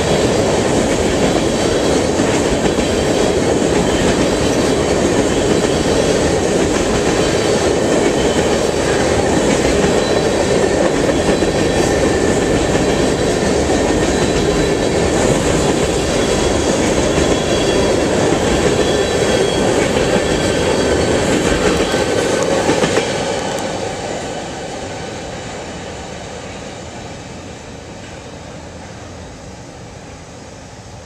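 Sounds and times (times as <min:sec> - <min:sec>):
rail cars rumbling over rails: 0:00.0 - 0:31.0
faint high wheel squeal: 0:15.9 - 0:22.0.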